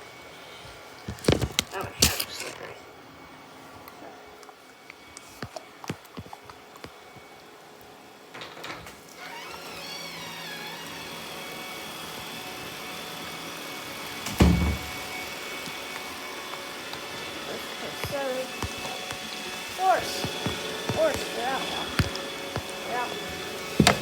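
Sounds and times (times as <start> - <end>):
robot vacuum motor whirring: 9.2 - 24.0.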